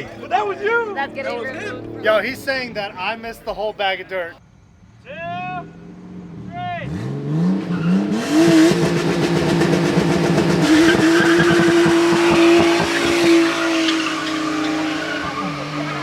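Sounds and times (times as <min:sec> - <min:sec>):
car engine revving: 0:05.7 - 0:16.0
tyres squealing: 0:09.6 - 0:16.0.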